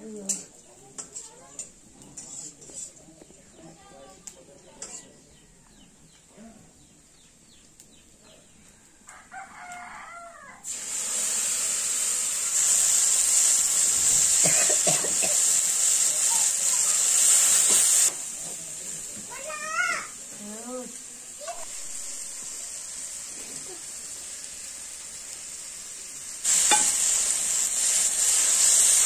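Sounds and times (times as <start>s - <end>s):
paste sizzling in hot oil: 0.3s - 3.5s, 4.8s - 5.1s, 9.6s - 29.0s
rooster crowing: 9.0s - 10.7s.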